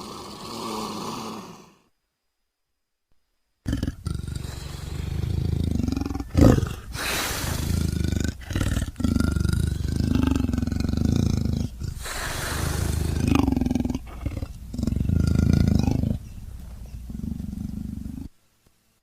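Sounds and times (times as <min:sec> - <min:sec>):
leopard growling and roaring: 0:03.7 - 0:18.3.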